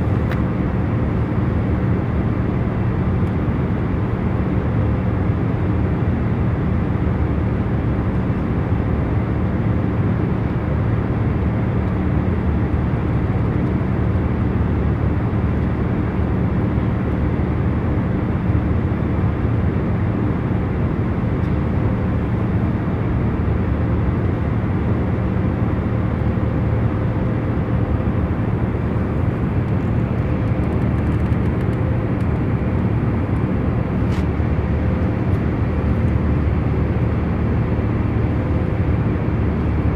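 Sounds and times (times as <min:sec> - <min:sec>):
airliner cabin hum: 0:00.0 - 0:04.2, 0:20.6 - 0:39.9.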